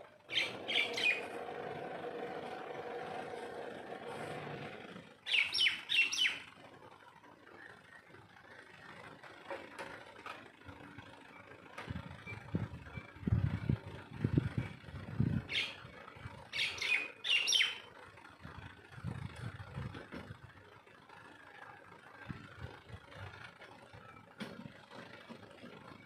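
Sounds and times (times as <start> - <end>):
low irregular rumbling: 0.0 - 26.0
bird chirping: 0.3 - 1.3, 5.3 - 6.5, 15.5 - 15.8, 16.5 - 17.9.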